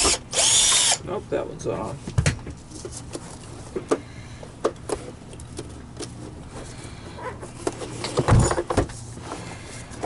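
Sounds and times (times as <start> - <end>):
clatter and thump: 7.7 - 9.0.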